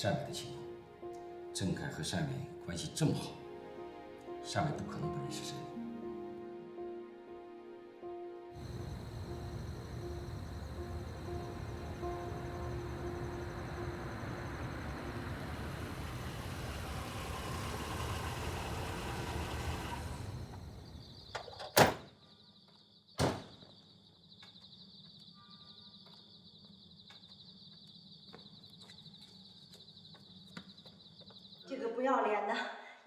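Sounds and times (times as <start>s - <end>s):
low vehicle rumble: 8.6s - 21.3s
steady high chirring: 8.6s - 21.3s
door bangs: 23.2s - 23.6s.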